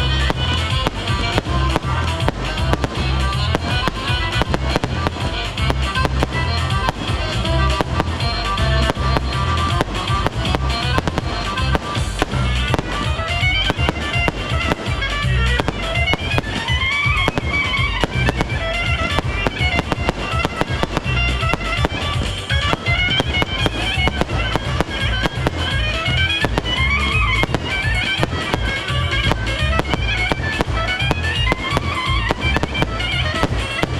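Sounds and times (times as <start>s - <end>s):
fireworks bangs and crackles: 0.0s - 33.9s
loud music: 0.0s - 33.9s.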